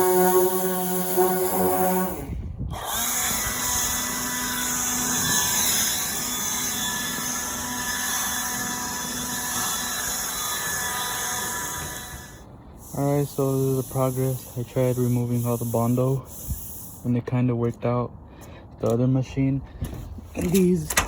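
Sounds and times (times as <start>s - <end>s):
power sander grinding metal panel: 0.0s - 12.3s.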